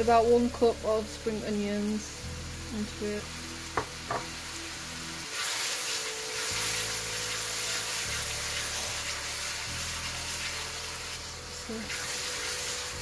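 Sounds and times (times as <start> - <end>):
sauce sizzling in a hot wok: 0.0 - 13.0.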